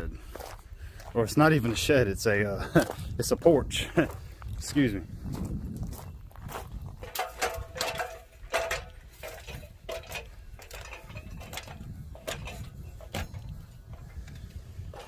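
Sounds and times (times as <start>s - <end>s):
metallic clinks and knocks: 6.9s - 15.0s.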